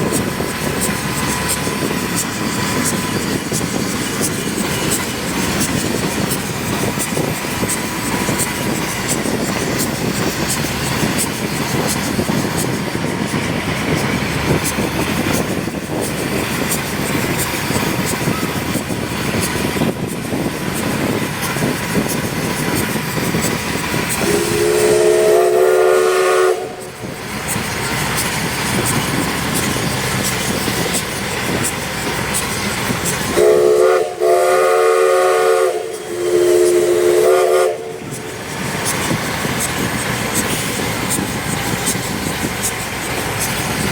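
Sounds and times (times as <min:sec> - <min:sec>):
steam hiss and rumble: 0:00.0 - 0:43.9
steam locomotive whistle: 0:23.4 - 0:27.1, 0:33.2 - 0:39.1.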